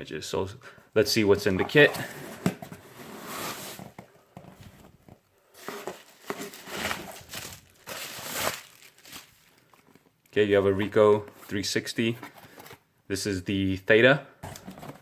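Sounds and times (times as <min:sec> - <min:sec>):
packaging rustling and crinkling: 0:03.5 - 0:10.4.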